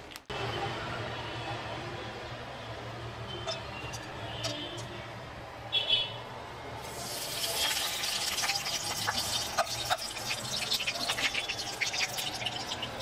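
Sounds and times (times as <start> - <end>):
food sizzling with crackles: 6.8 - 13.0.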